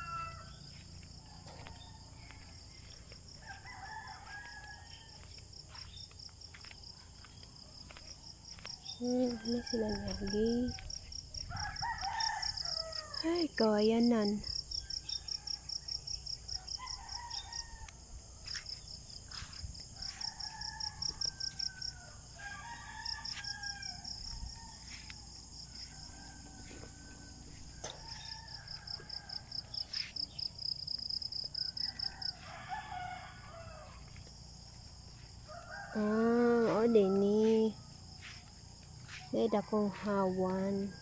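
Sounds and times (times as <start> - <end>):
roosters crowing: 0.0 - 2.8, 3.4 - 5.3, 9.0 - 13.3, 16.5 - 18.1, 19.9 - 30.7, 31.5 - 34.2, 35.3 - 38.4
insect pulsed trill: 0.0 - 41.0.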